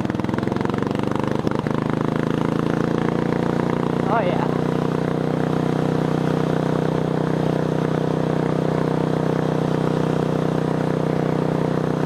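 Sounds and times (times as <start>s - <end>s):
lawn tractor engine running: 0.0s - 12.0s.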